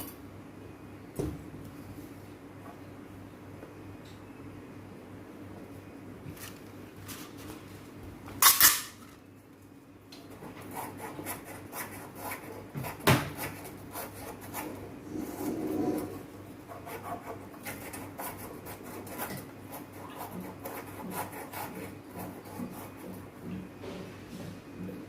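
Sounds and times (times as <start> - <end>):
tools scraping and rubbing: 10.4 - 23.2.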